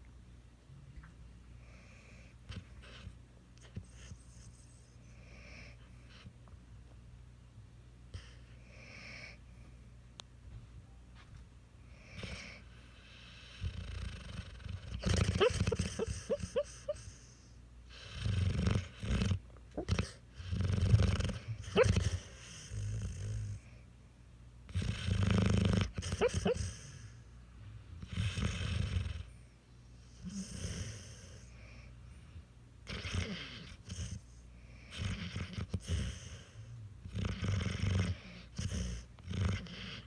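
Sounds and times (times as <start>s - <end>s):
puppy snoring: 1.6s - 6.3s, 11.9s - 23.8s, 24.7s - 27.3s, 27.9s - 40.0s.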